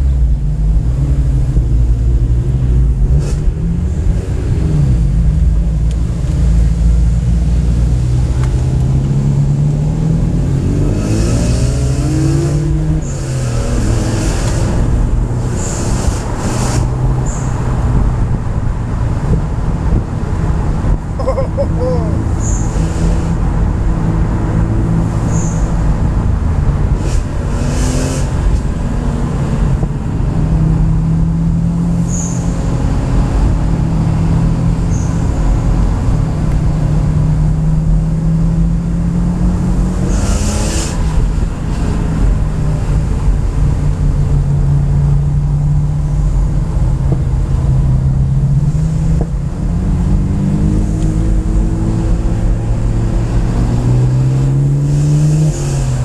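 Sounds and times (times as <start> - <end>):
car engine accelerating: 0.0 - 56.0
tyre and road rumble: 0.0 - 56.0.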